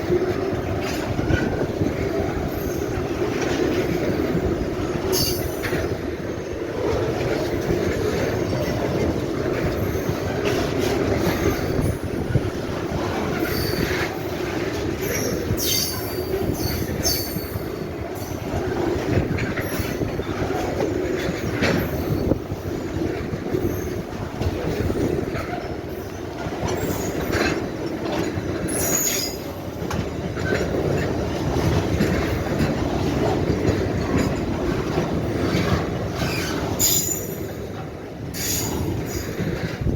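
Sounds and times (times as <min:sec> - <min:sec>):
rail joint clicks: 0:00.0 - 0:39.9
train wheels rumbling on rail: 0:00.0 - 0:39.9
high wheel squeals: 0:13.4 - 0:14.1, 0:28.7 - 0:29.5, 0:36.2 - 0:37.6.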